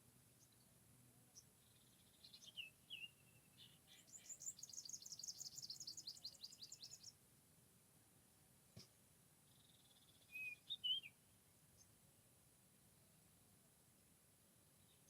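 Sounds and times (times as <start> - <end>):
bird chirping and trilling: 2.2 - 7.1, 9.6 - 11.1.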